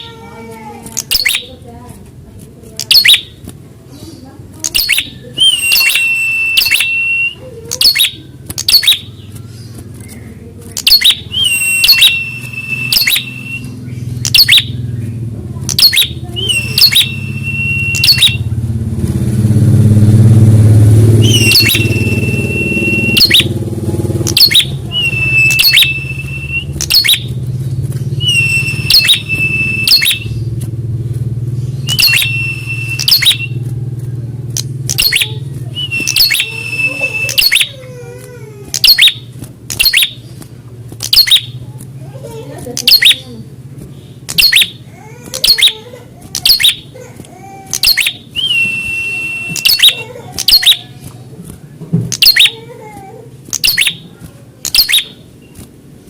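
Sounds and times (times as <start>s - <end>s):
bird calling sharp chips and whistle: 0.9s - 1.6s, 2.8s - 3.4s, 4.6s - 14.8s, 15.7s - 18.5s, 21.2s - 23.6s, 24.3s - 30.6s, 31.6s - 33.7s, 34.6s - 37.9s, 38.7s - 41.6s, 42.8s - 47.0s, 47.7s - 51.3s, 52.1s - 52.6s, 53.5s - 55.8s
low engine drone: 11.2s - 37.5s.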